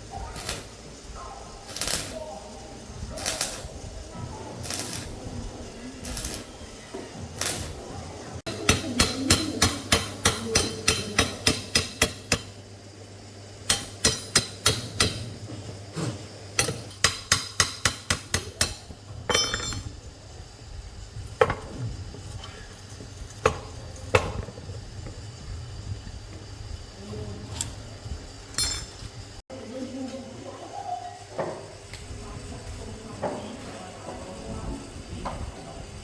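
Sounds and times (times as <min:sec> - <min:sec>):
hammer striking metal: 0:08.5 - 0:12.6, 0:13.7 - 0:15.3, 0:16.6 - 0:19.9.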